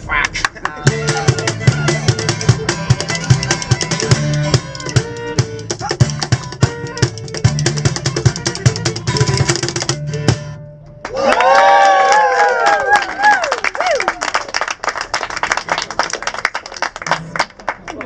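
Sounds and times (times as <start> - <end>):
live band playing: 0.3 - 10.8
crowd cheering and whooping: 11.1 - 14.6.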